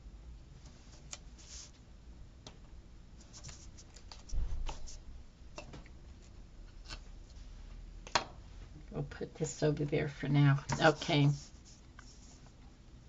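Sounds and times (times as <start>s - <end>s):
tape and sticker sheets rustling: 10.7s - 12.5s.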